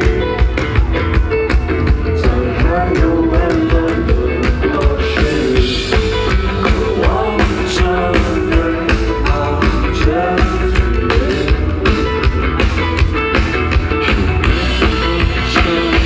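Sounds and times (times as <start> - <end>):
distorted electric guitar chords: 0.0 - 16.0
rock band playing: 0.0 - 16.0.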